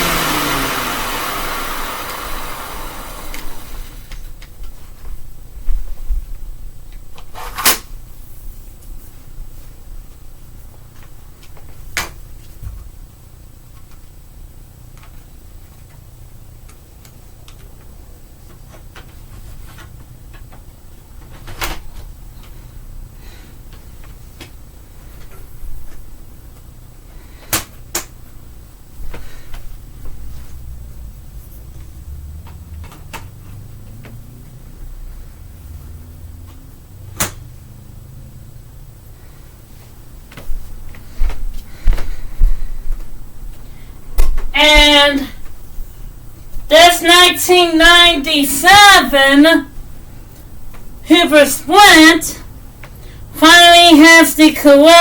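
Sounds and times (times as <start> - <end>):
vacuum motor winding down: 0.0 - 4.2.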